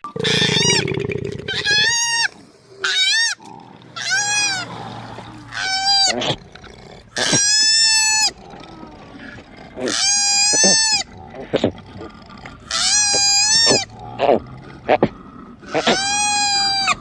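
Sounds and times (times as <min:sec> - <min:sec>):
wavering animal cries: 0:01.5 - 0:06.5, 0:07.2 - 0:11.6, 0:12.7 - 0:17.0.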